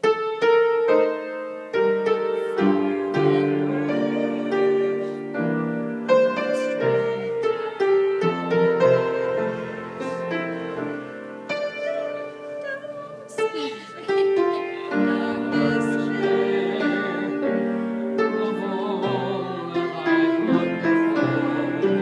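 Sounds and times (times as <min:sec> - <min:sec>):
slow piano piece: 0:00.0 - 0:22.0.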